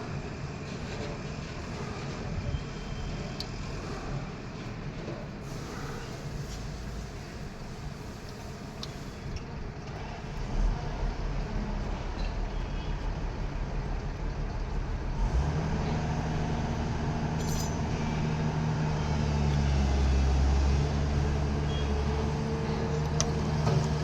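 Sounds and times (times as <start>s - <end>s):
engine humming: 6.0s - 24.0s.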